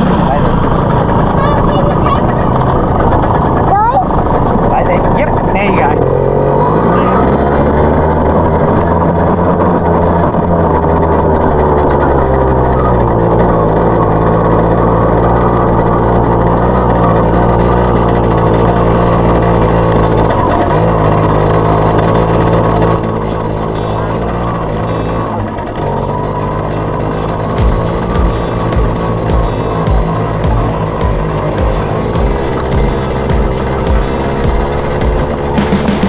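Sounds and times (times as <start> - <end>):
dirt bike engine running: 0.0 - 19.9, 27.4 - 36.0.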